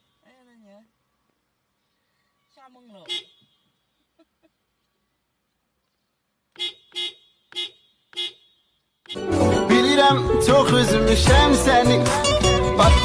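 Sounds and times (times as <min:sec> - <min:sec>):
short honks: 0:03.0 - 0:03.8, 0:06.5 - 0:09.3.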